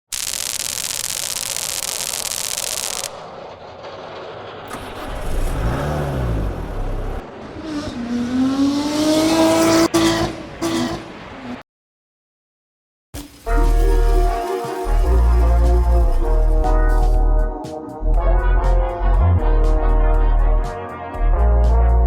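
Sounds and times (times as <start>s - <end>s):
loud hiss: 0.1s - 3.2s, 13.2s - 17.2s
low rumble: 3.0s - 7.4s
car engine revving: 3.8s - 11.3s.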